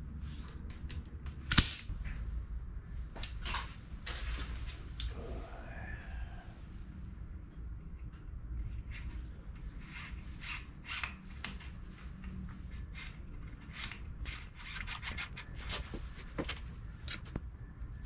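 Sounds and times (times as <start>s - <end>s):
short sharp clicks: 1.4s - 1.9s
rubbing and scraping on bike parts: 8.0s - 16.4s.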